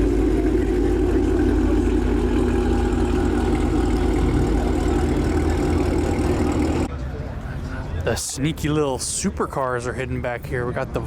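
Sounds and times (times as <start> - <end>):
car engine idling: 0.0 - 6.9.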